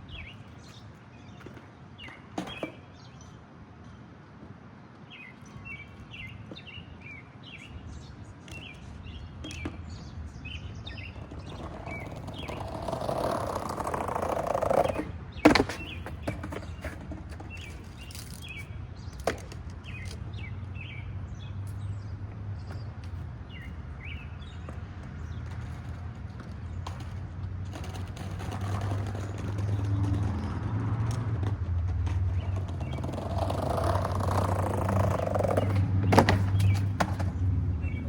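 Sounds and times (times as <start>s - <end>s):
small birds chirping: 0.0s - 4.0s, 4.9s - 27.2s, 32.3s - 38.0s
rolling noise: 8.4s - 20.4s, 22.6s - 38.0s.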